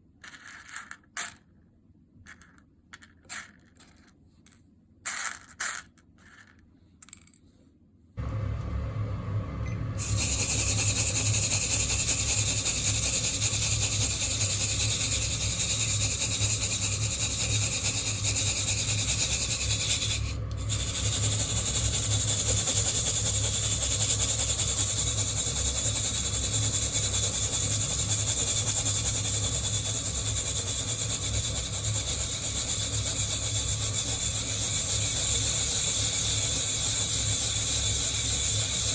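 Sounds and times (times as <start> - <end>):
low burner hum: 8.2 - 38.9.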